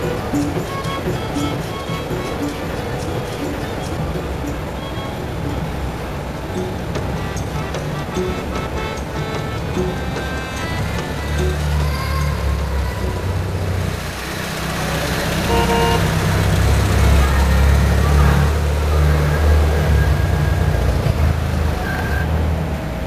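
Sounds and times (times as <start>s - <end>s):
car engine rumbling: 0.0s - 23.0s
car horn toot: 6.6s - 11.8s, 15.2s - 20.9s.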